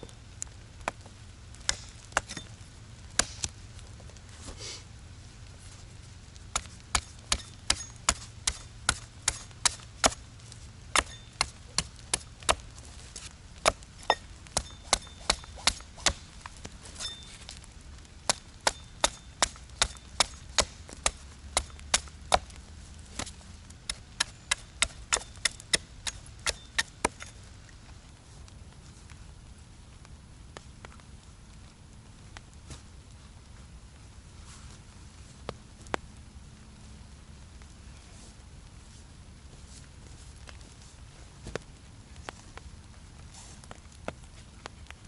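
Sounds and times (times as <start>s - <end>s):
axe chopping wood: 6.5s - 10.2s, 10.9s - 12.6s, 13.6s - 16.2s, 18.3s - 22.6s, 23.2s - 27.3s.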